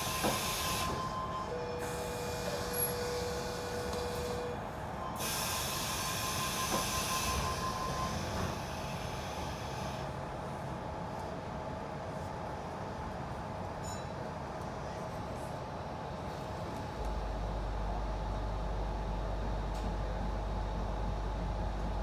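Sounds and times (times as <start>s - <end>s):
train running rumble: 0.0s - 11.2s, 16.3s - 22.0s.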